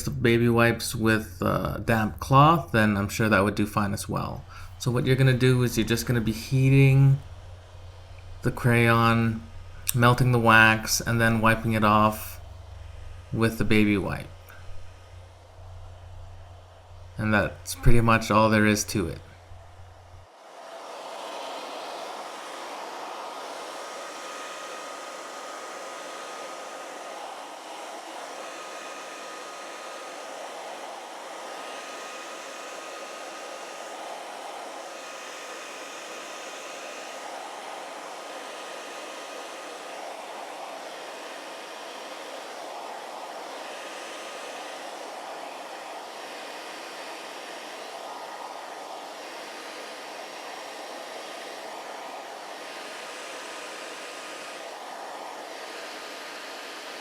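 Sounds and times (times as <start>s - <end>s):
hair dryer blowing: 0.0s - 57.0s.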